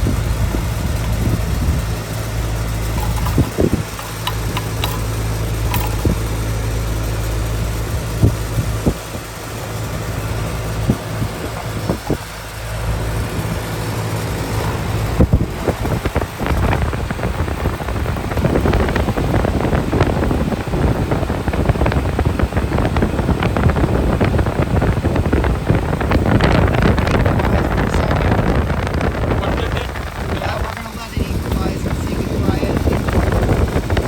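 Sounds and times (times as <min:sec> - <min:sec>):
air conditioner unit humming: 0:00.0 - 0:34.0
clicks and knocks from handling: 0:02.9 - 0:06.4.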